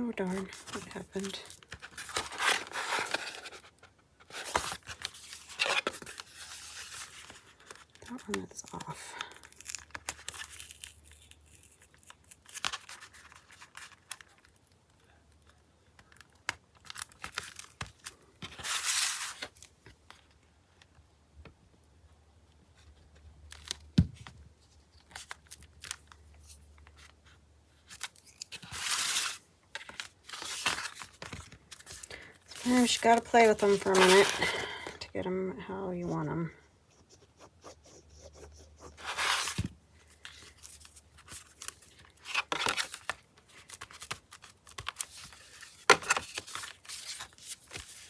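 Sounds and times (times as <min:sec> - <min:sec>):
paper pages rustling: 0:00.3 - 0:14.6, 0:16.4 - 0:20.2, 0:25.0 - 0:34.9, 0:38.9 - 0:48.0.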